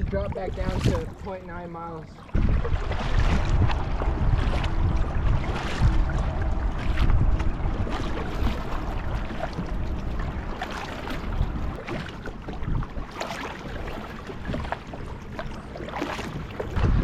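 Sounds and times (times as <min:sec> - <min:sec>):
paddle splashing in water: 0:00.0 - 0:17.0
wind on microphone: 0:00.0 - 0:17.0.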